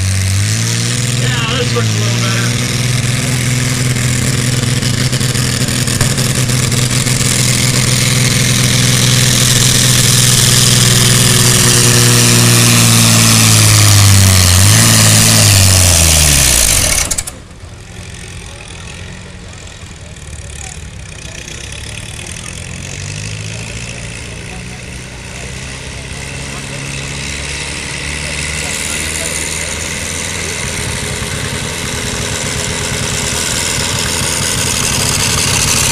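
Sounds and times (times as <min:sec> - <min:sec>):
tractor engine running hard: 0:00.0 - 0:35.9.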